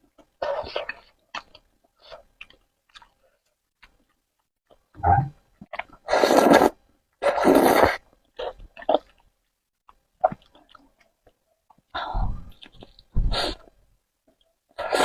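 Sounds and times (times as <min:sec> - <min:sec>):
wet chewing and mouth sounds: 0:00.0 - 0:04.9, 0:05.6 - 0:15.0
person slurping noodles: 0:06.0 - 0:08.5, 0:14.8 - 0:15.0.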